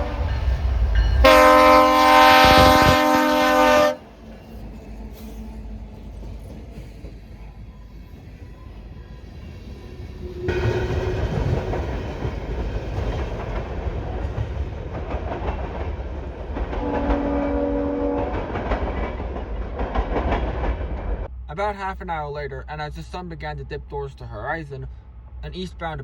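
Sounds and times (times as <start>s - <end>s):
locomotive air horn blast: 0.0s - 0.6s, 1.2s - 4.2s, 16.8s - 18.5s
train wheels rumbling on rails: 0.0s - 22.0s.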